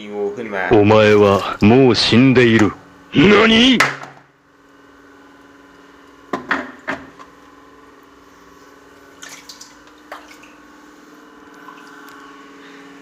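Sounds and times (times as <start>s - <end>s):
faint steady hum: 0.0s - 6.3s, 7.1s - 13.0s
water splashing and dripping: 9.2s - 10.6s.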